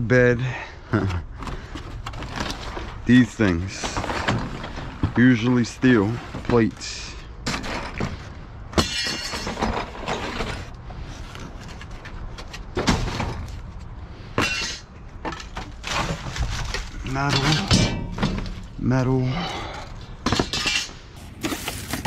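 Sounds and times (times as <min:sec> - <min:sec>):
metal scrap clanking: 0:07.4 - 0:10.7, 0:14.4 - 0:18.8, 0:20.2 - 0:21.0.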